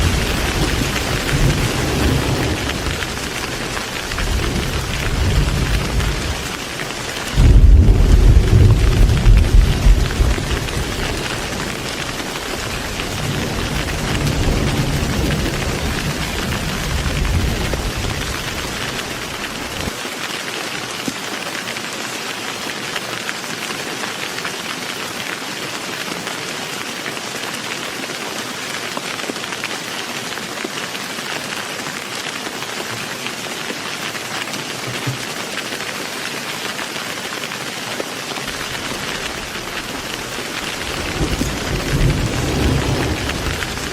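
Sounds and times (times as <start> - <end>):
thunder rumbling: 0.0 - 20.0, 38.4 - 43.9
heavy rain: 0.0 - 43.9.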